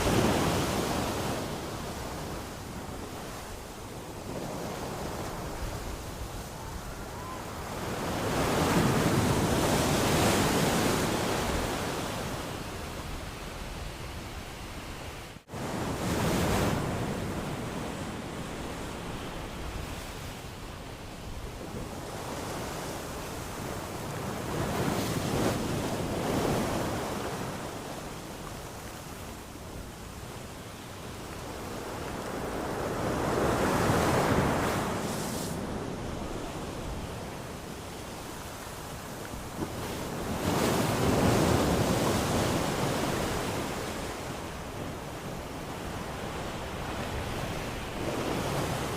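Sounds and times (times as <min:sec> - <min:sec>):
sea waves breaking on shore: 0:00.0 - 0:48.9.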